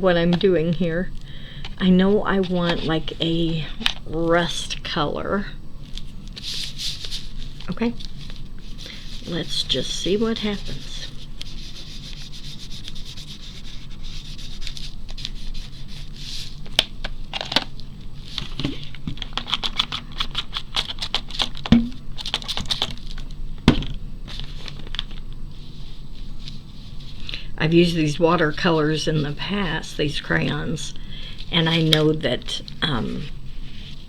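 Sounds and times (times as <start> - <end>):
crayon scribbling on paper: 8.8 - 16.4
sharp knocks: 21.7 - 22.0.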